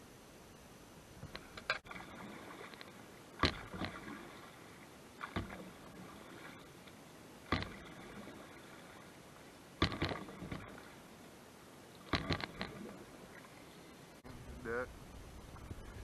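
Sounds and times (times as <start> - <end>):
paddle splashing in water: 1.2 - 11.3, 11.9 - 14.0.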